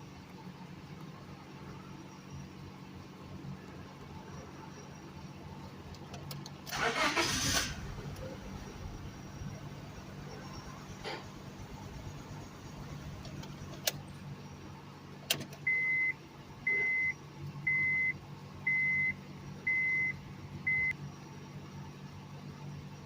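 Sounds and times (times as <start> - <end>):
car engine idling: 5.4 - 15.9.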